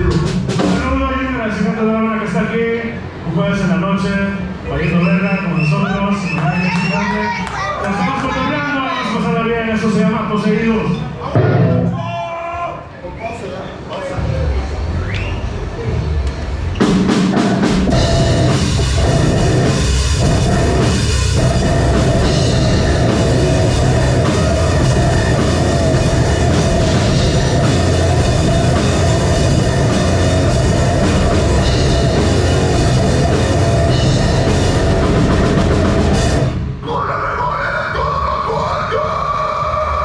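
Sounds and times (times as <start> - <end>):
pounding drum kit: 0.0 - 1.4, 11.3 - 12.2, 14.1 - 36.8
metalcore band playing live: 16.8 - 36.8.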